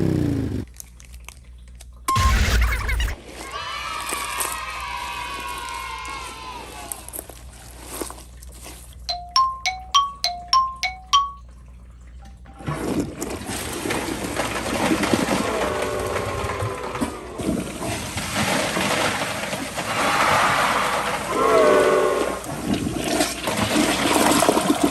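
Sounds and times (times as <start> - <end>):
bright chime notes: 9.1 - 11.4
toilet flushing: 12.4 - 24.9.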